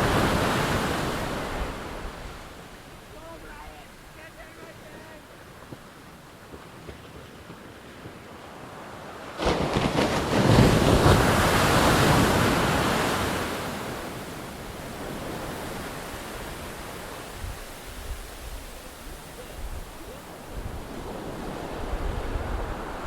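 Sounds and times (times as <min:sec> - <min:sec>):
ocean wave breaking: 0:00.0 - 0:23.0
sea hiss: 0:13.7 - 0:23.0.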